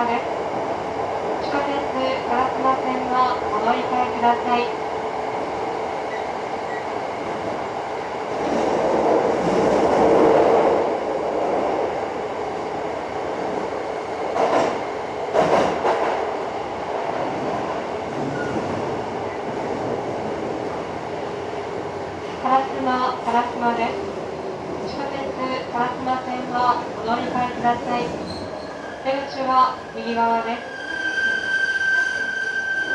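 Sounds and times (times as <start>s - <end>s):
train wheels on rail: 3.2s - 25.7s, 26.4s - 30.0s.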